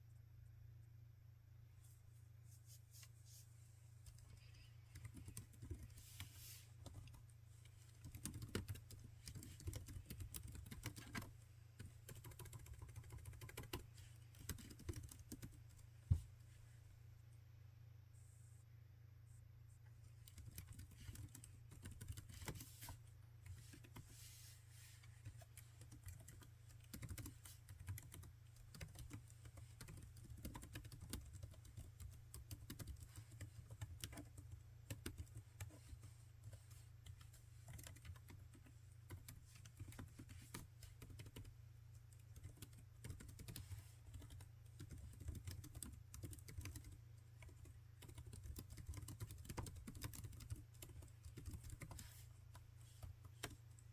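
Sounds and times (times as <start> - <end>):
laptop keyboard typing: 4.0 - 6.0, 6.9 - 15.7, 20.2 - 22.7, 25.4 - 35.8, 36.4 - 53.9.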